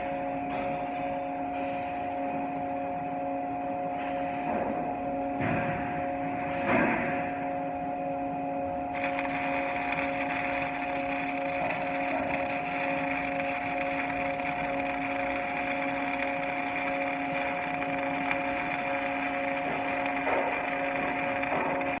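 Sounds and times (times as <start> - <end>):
machine hum: 7.6 - 22.0.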